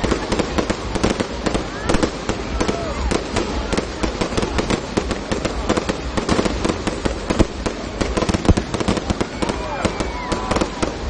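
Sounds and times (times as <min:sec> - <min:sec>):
fireworks popping and banging: 0:00.0 - 0:11.0.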